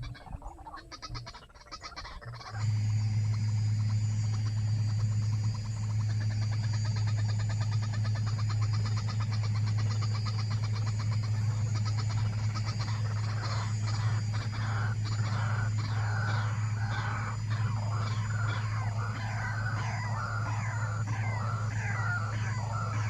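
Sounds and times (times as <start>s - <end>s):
harsh repeated bird calls: 0.0s - 23.0s
steady low hum: 0.0s - 23.0s.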